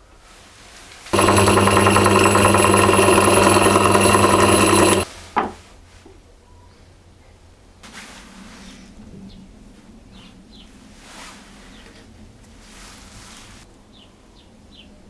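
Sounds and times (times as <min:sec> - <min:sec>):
electric power tool motor: 0:01.2 - 0:05.1.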